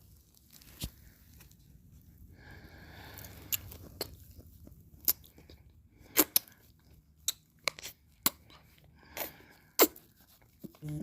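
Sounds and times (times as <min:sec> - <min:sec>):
lip smacks: 0:03.2 - 0:10.9.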